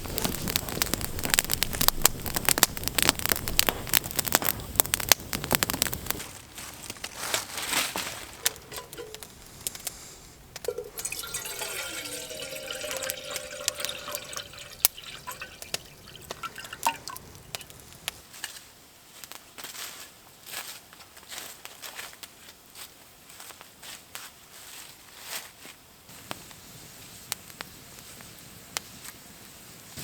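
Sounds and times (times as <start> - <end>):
handling clicks and knocks: 8.4 - 9.4
liquid pouring into container: 8.5 - 9.5, 10.6 - 18.1.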